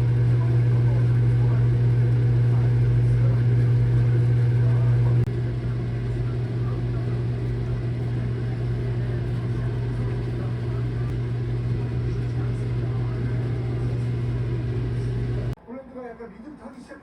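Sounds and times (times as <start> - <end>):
low machine hum: 0.0 - 15.6.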